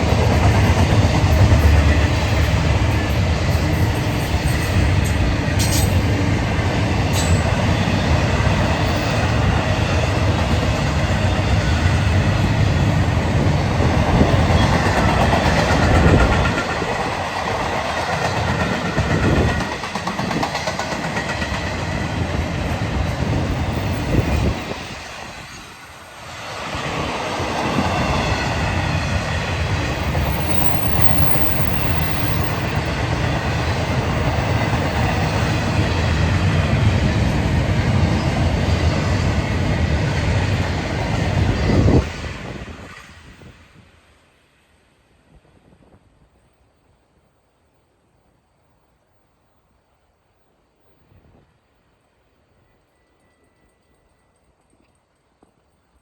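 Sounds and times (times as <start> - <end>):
train wheels rumbling on rails: 0.0 - 44.0.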